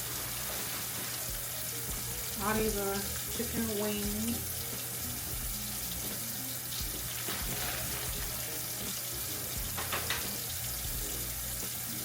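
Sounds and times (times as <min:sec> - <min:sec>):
tap running into a sink: 0:04.1 - 0:11.1.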